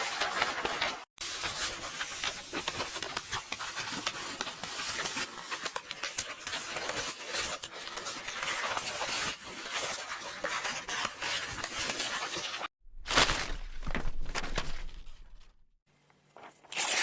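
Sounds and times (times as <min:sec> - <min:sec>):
paper pages rustling: 0:00.0 - 0:15.6
paper ripping: 0:16.4 - 0:17.0.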